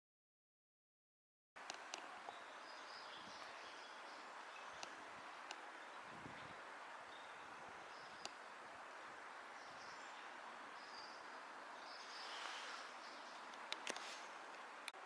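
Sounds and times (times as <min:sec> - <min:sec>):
distant bird chirps: 0:01.6 - 0:15.0
small click: 0:13.3 - 0:15.0.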